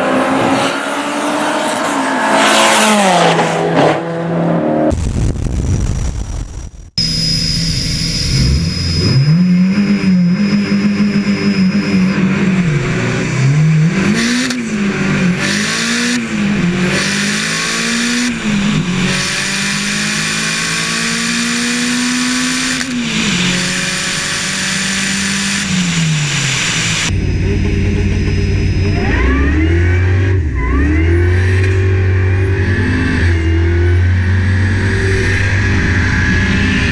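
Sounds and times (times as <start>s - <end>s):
racing car engines accelerating: 0.0s - 5.0s, 8.3s - 36.9s
high steady whine: 4.9s - 13.4s, 22.5s - 36.9s.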